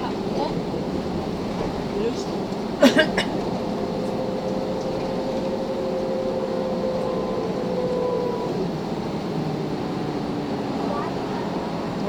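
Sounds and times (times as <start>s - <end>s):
engine and road noise: 0.0s - 12.0s
higher whine: 0.0s - 12.0s
bus gearbox whine: 1.1s - 9.3s.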